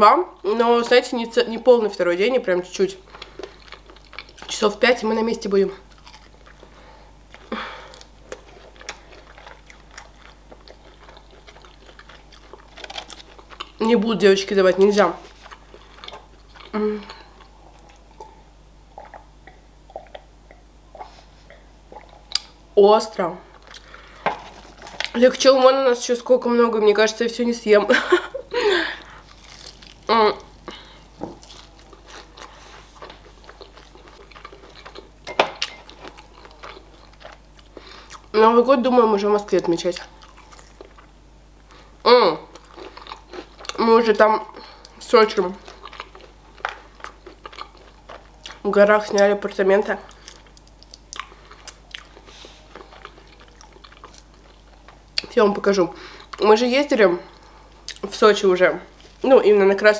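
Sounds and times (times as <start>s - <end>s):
soft chewing with mouth clicks: 3.0s - 4.6s, 5.7s - 14.0s, 14.7s - 22.6s, 23.5s - 25.2s, 29.0s - 38.4s, 39.5s - 43.8s, 44.5s - 55.4s
crunchy bite: 29.3s - 30.8s.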